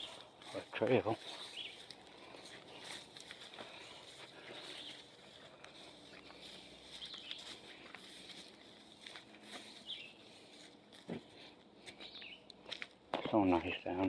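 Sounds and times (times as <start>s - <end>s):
footsteps through leaves and twigs: 0.0s - 14.0s
bird chirps: 1.2s - 1.9s, 4.5s - 5.2s, 6.0s - 7.7s, 9.6s - 10.4s, 11.9s - 12.5s.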